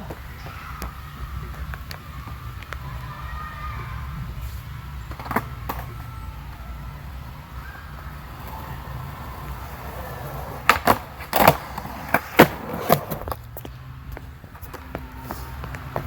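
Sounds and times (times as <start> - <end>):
skateboard wheels rolling on pavement: 0.0 - 16.0
skateboard clacking on ground: 5.0 - 6.0, 7.9 - 16.0.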